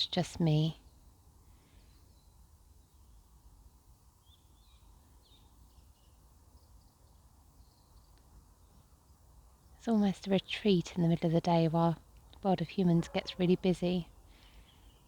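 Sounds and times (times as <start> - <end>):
distant birds chirping: 0.0 - 15.0.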